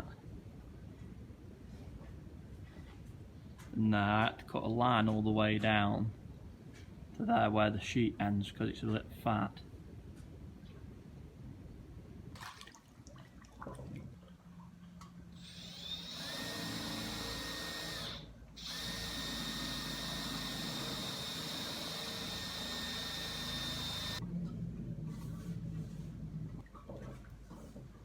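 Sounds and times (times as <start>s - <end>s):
power drill motor running: 15.4s - 24.2s.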